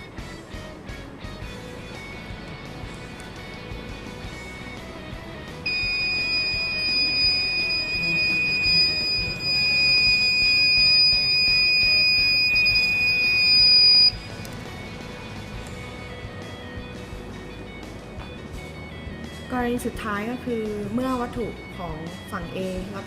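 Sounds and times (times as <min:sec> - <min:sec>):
high-pitched warning buzzer: 0:05.7 - 0:14.2.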